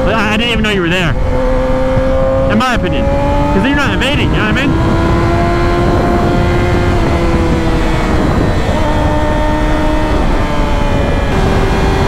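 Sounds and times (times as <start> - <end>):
motorcycle engine running: 0.0 - 12.0
wind noise: 0.0 - 12.0.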